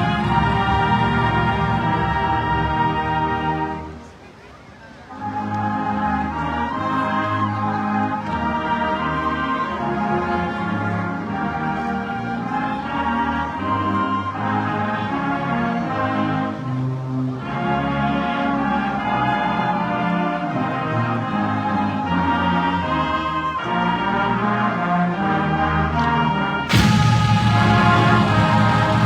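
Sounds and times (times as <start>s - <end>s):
loud cymbal crash: 0.0s - 1.4s, 26.7s - 29.0s
marching band playing: 0.0s - 3.9s, 26.7s - 29.0s.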